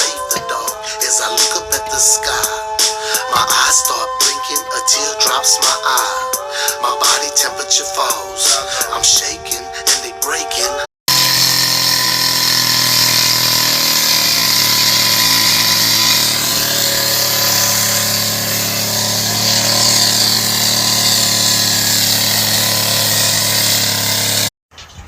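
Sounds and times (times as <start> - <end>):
power tool running steadily: 11.1 - 24.5.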